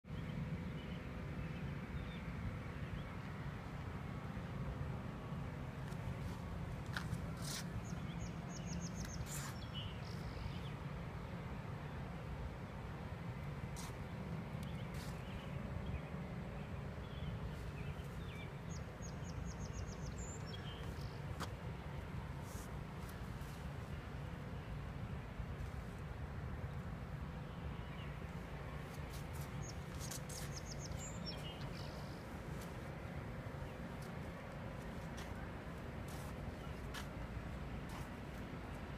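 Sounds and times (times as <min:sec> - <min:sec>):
low outdoor rumble: 0:00.1 - 0:38.9
bird chirping: 0:29.5 - 0:32.3.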